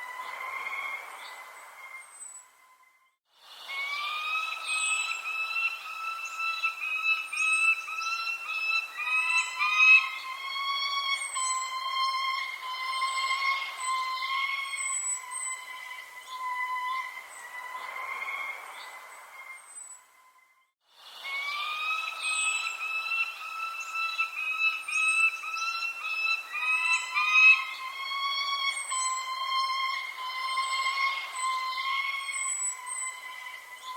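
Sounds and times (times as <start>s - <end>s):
wavering whistle-like tone: 0.0s - 33.9s
high bird chirps: 3.9s - 17.9s, 21.4s - 33.9s.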